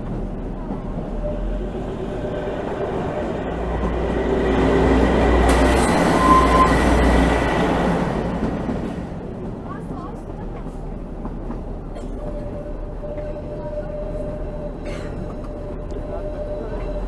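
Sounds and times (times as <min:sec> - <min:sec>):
train rumbling: 0:00.0 - 0:17.0
high wheel squeal: 0:05.5 - 0:07.2.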